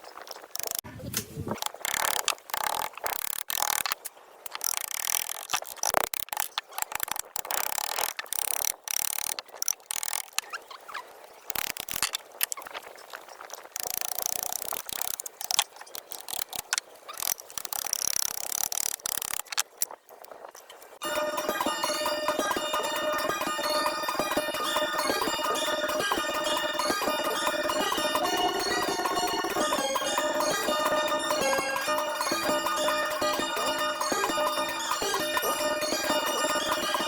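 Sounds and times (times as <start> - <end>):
squeaks and clicks of tools: 0.0 - 0.8, 1.5 - 21.0.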